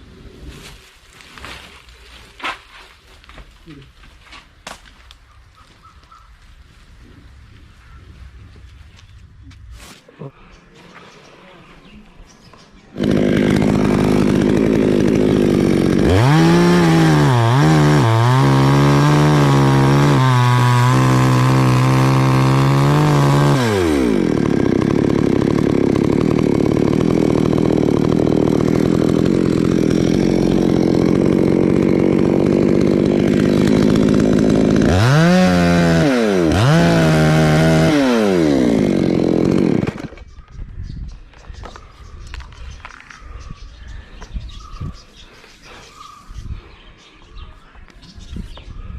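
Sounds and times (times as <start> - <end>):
chainsaw cutting a tree: 13.0 - 40.3.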